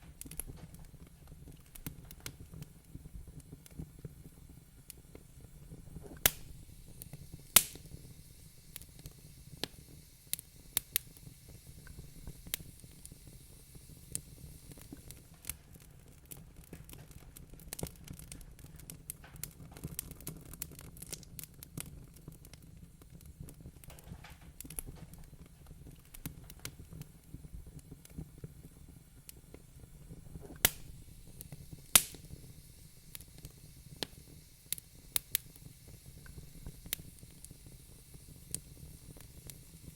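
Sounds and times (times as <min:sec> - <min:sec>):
loud fire pops: 0:00.0 - 0:39.9
wood fire crackling: 0:00.0 - 0:39.9.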